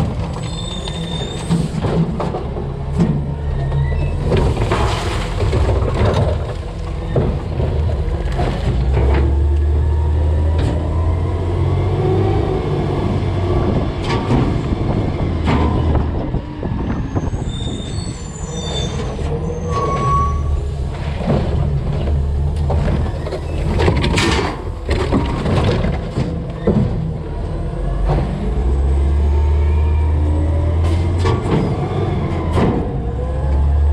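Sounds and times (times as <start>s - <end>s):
cart knocking and clattering: 0.0s - 3.4s, 4.0s - 9.5s, 21.0s - 27.1s
garbage dumping into hopper: 0.0s - 11.0s
short squeals: 0.4s - 1.7s, 17.1s - 20.6s
garbage truck engine revving: 0.9s - 16.8s.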